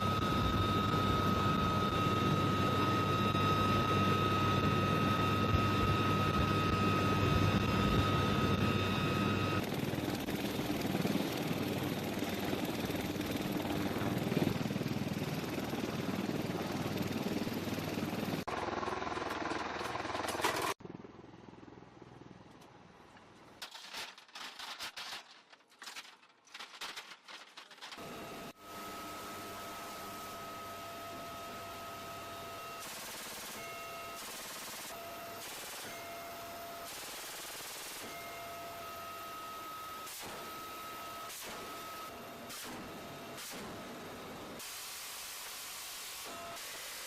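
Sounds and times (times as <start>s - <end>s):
helicopter rotor noise: 0.0s - 22.4s, 27.8s - 44.7s
helicopter turbine whine: 0.0s - 23.0s, 27.9s - 47.0s
scattered crackles: 23.6s - 28.0s.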